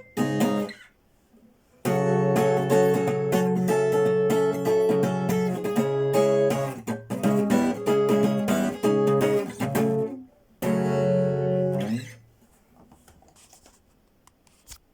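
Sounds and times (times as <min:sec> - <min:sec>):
acoustic guitar strumming chords: 0:00.0 - 0:00.9, 0:01.8 - 0:12.2.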